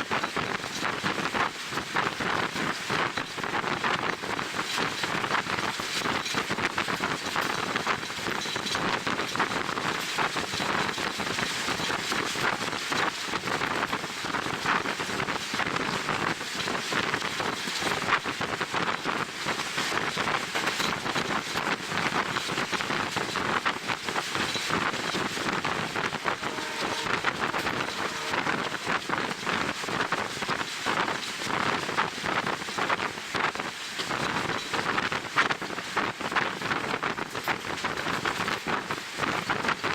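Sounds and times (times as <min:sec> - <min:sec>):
train running noise: 0:00.0 - 0:39.9
wind buffeting microphone: 0:00.0 - 0:39.9.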